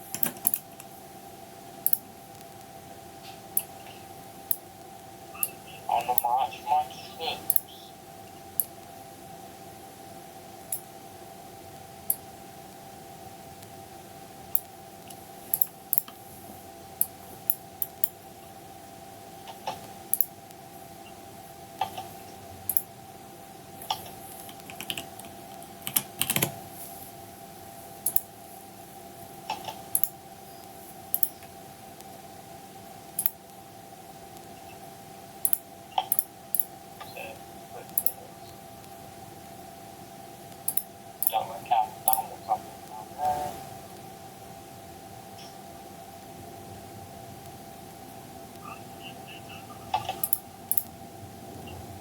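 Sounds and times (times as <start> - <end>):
steady low hum: 0.0 - 52.0
keyboard keys clicking: 24.5 - 26.6.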